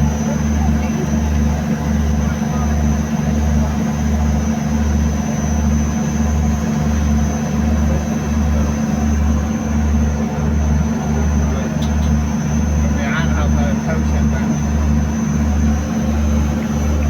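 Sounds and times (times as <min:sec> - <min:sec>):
boat engine throbbing drone: 0:00.0 - 0:17.0
high steady whine: 0:10.4 - 0:17.0.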